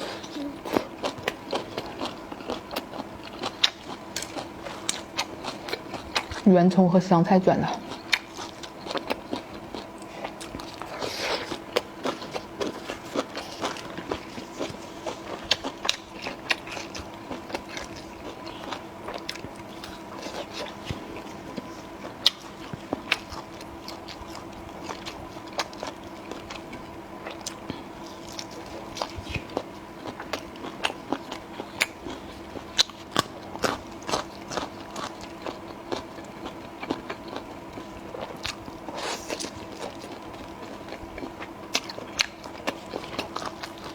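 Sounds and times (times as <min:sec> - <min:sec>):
biting and chewing crunchy food: 0:00.0 - 0:06.8, 0:07.7 - 0:43.9.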